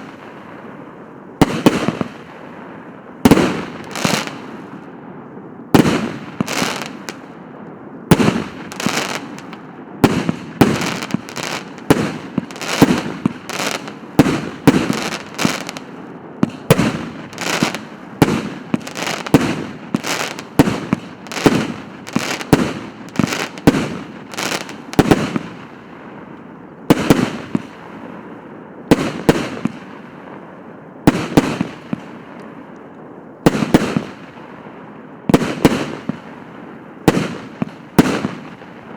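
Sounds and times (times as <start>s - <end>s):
firework bangs: 1.4s - 2.5s, 3.2s - 4.8s, 5.7s - 7.4s, 8.1s - 25.8s, 26.9s - 27.8s, 28.9s - 30.0s, 31.1s - 32.1s, 33.5s - 34.4s, 37.0s - 38.9s.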